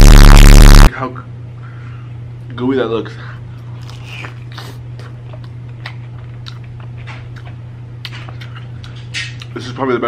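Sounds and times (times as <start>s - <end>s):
steady low hum: 0.0s - 2.4s
crunching fried chicken: 3.6s - 9.8s.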